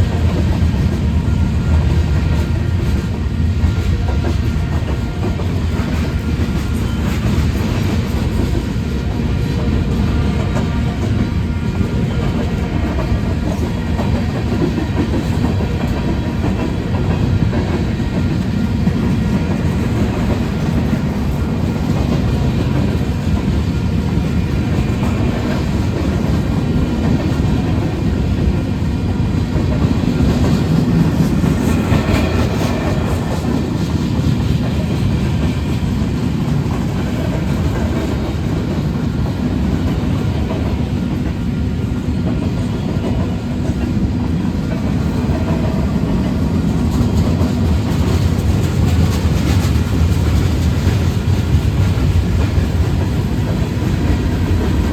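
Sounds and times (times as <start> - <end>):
train wheels rumbling on rails: 0.0 - 54.9.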